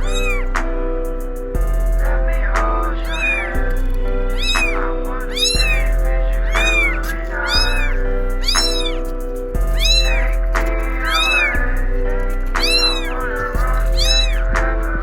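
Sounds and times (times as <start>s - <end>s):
kitten meowing: 0.0s - 0.6s, 2.9s - 12.0s, 12.6s - 14.6s
background music: 0.0s - 15.0s.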